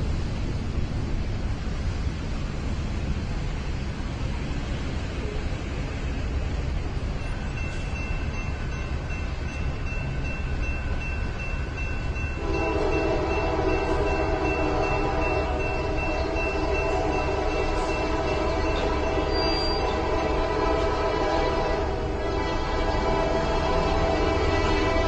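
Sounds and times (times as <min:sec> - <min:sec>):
train horn chord: 0:12.3 - 0:25.0.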